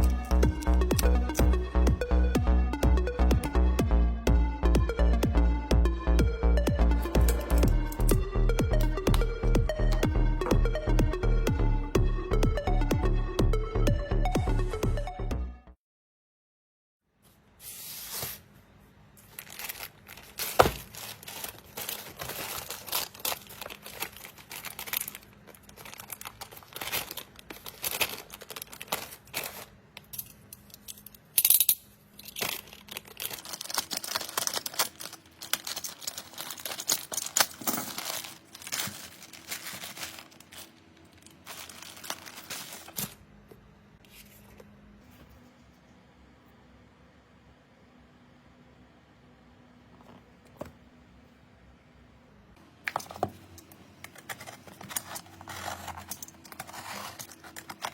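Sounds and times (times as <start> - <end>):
material tearing and crinkling: 19.2 - 29.8, 32.3 - 43.2, 54.3 - 57.9.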